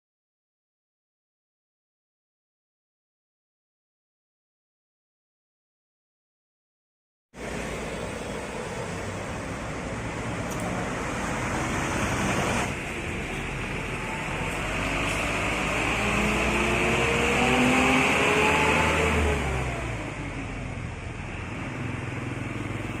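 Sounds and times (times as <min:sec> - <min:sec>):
truck passing by: 0:07.4 - 0:23.0.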